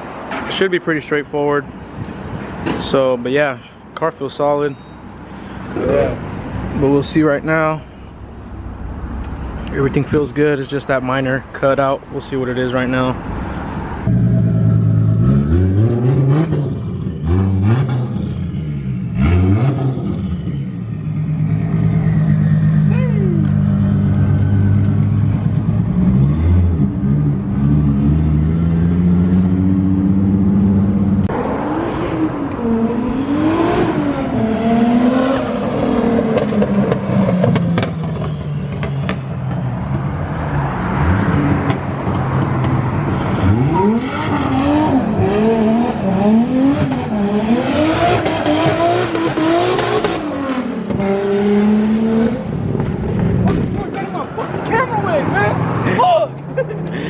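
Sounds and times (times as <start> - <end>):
car engine revving: 13.8 - 39.2, 39.9 - 56.0.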